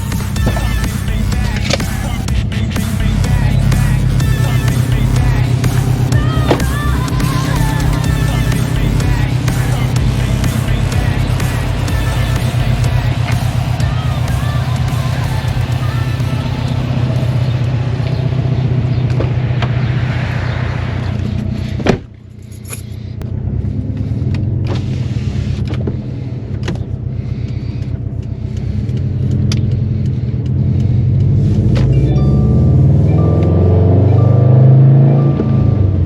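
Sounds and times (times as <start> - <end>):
turbocharged car engine revving: 0.0 - 22.0, 23.2 - 36.0
sharp loud exhaust pop: 5.6 - 14.0.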